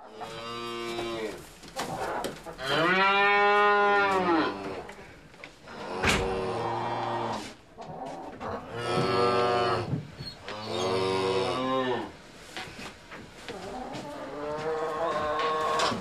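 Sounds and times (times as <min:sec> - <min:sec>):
cattle mooing: 0:02.6 - 0:04.9, 0:10.5 - 0:12.1.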